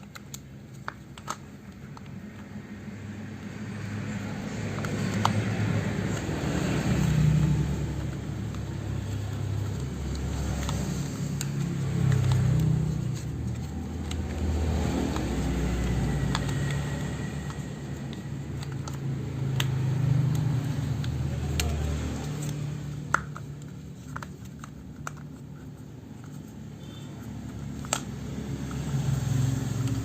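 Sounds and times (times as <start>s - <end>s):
low engine-like hum: 2.6s - 24.0s.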